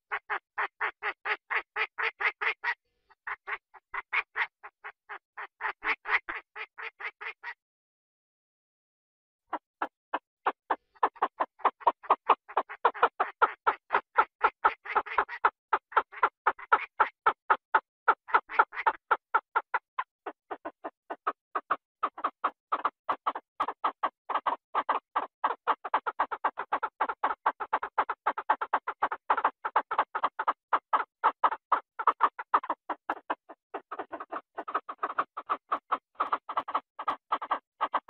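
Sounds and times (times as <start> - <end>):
rapid short animal calls: 27.7 - 38.0.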